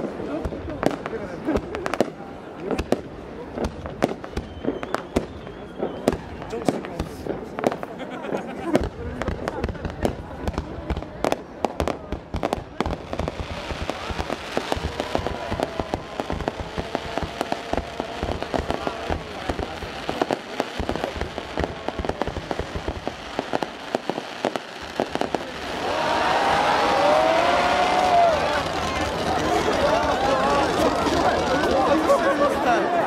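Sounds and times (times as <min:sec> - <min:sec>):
fireworks crackling and popping: 0:00.0 - 0:32.9
loud voices: 0:12.8 - 0:33.0.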